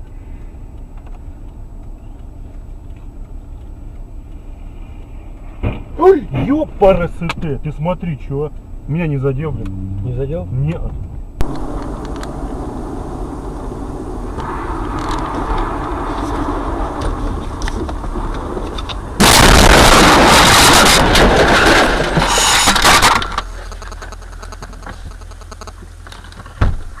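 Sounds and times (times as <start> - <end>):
car road and engine noise: 0.0 - 27.0
loud crackling burst: 11.4 - 26.0.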